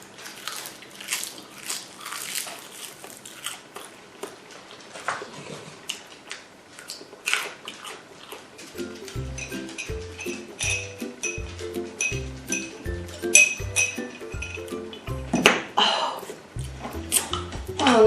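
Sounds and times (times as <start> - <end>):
close chewing with wet mouth clicks: 0.2 - 8.7.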